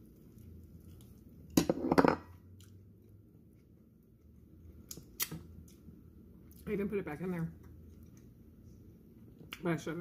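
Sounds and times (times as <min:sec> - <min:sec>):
quiet chewing: 0:00.0 - 0:01.6, 0:02.5 - 0:06.7, 0:07.5 - 0:09.6.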